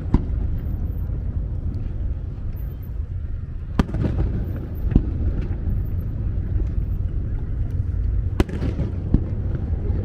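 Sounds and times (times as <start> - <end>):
low rumble: 0.0 - 10.0
fireworks bursting: 3.7 - 6.2, 8.2 - 10.0.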